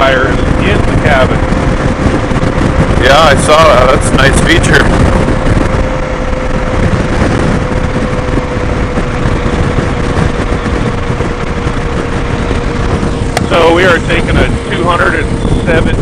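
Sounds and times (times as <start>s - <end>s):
faint steady whine: 0.0s - 16.0s
motorcycle engine and wind rush: 0.0s - 16.0s.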